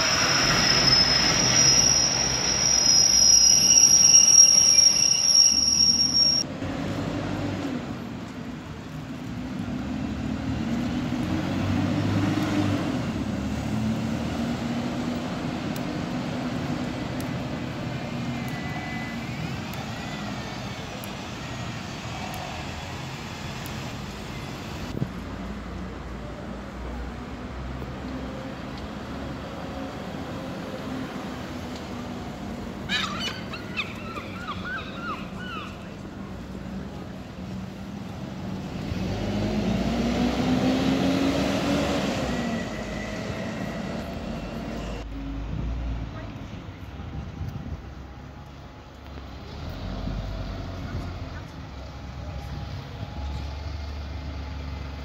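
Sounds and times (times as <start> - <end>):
train wheels squealing: 0.0 - 6.5, 18.2 - 23.5, 42.0 - 45.0
bus engine passing: 0.0 - 55.0
road traffic: 0.0 - 55.0.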